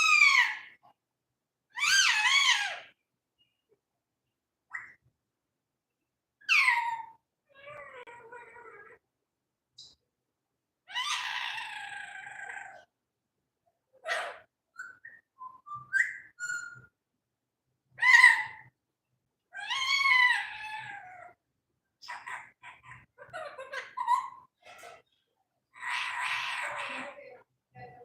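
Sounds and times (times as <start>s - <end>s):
parrot calling: 0.0s - 0.8s, 1.8s - 3.0s, 6.4s - 8.8s, 10.9s - 12.9s, 14.0s - 16.9s, 18.0s - 18.7s, 19.5s - 21.4s, 25.7s - 27.2s
parrot whistles and chirps: 14.7s - 17.0s.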